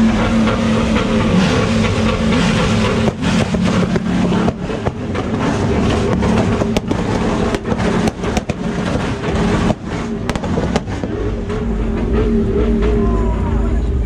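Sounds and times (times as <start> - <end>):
exhaust pops and bangs: 0.0 - 13.0
car engine on launch limiter: 0.0 - 14.0.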